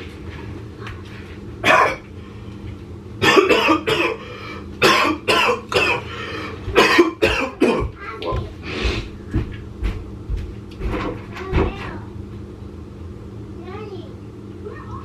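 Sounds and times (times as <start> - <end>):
man coughing hard: 1.6 - 2.0, 3.2 - 4.2, 4.8 - 6.1, 6.7 - 7.9.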